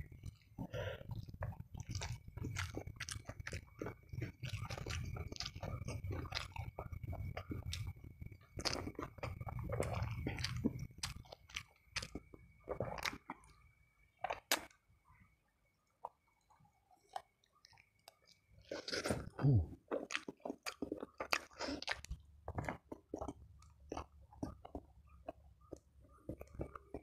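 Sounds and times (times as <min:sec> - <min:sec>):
close-up chewing: 0:00.0 - 0:14.8, 0:16.0 - 0:27.0
small crunches: 0:17.1 - 0:27.0.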